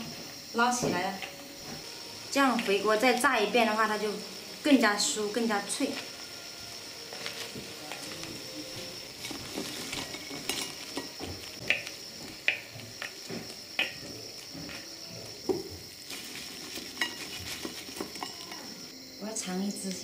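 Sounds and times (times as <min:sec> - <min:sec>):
fish sizzling in hot oil: 0:00.0 - 0:19.0
skimmer and chopsticks scraping wok: 0:07.0 - 0:11.8, 0:16.0 - 0:18.9.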